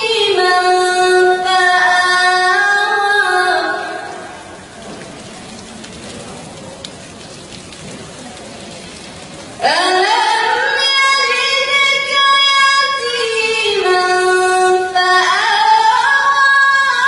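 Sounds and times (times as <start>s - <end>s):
melodic recitation: 0.0s - 4.4s, 9.6s - 17.0s.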